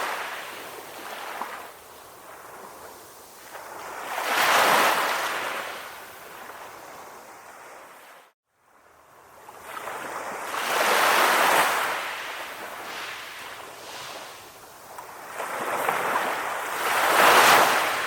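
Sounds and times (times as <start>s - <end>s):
calm ocean waves washing in: 0.0s - 18.0s.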